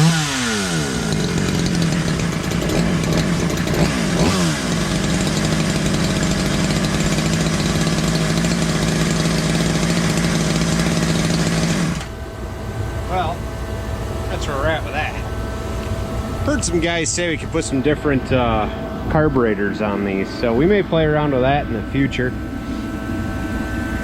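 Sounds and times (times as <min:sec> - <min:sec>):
chainsaw idling and revving: 0:00.0 - 0:17.9.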